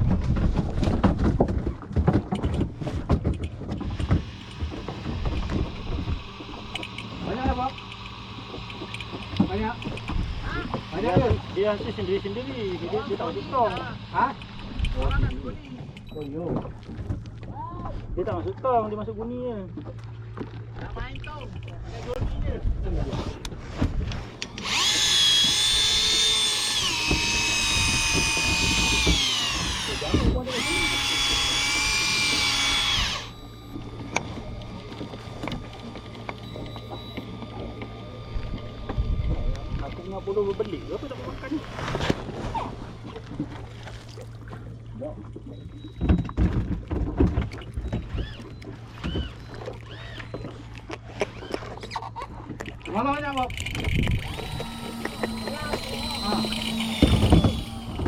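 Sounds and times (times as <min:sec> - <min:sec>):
knocks and clatter on boat: 0:00.0 - 0:12.1, 0:12.9 - 0:24.6, 0:33.4 - 0:56.0
fishing reel motor whining: 0:03.6 - 0:16.3, 0:24.2 - 0:44.7, 0:47.6 - 0:58.0.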